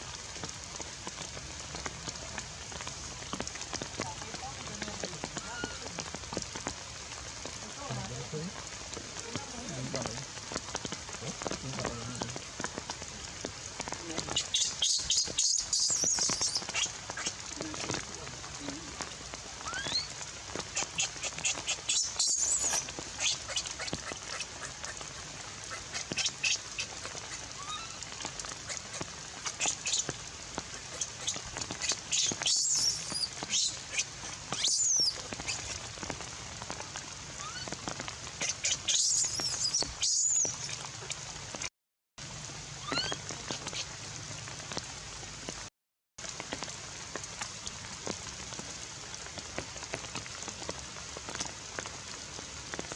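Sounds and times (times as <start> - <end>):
falling rain hiss: 0.0 - 52.9
baby monkey crying: 32.1 - 34.0.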